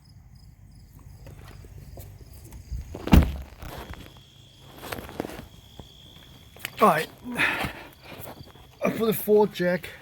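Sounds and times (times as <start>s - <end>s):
heavy thump: 3.0s - 3.7s.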